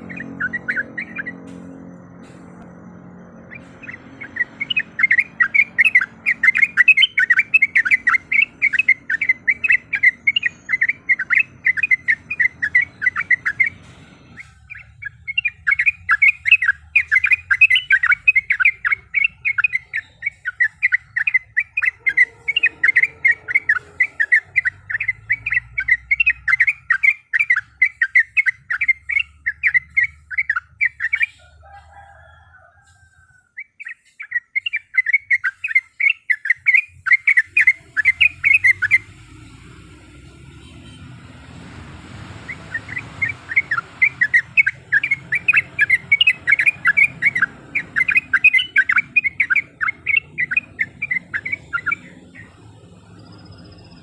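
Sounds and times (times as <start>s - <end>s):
bird singing bubbly notes: 0.0s - 1.4s, 2.8s - 13.8s, 14.4s - 31.3s, 42.5s - 54.0s.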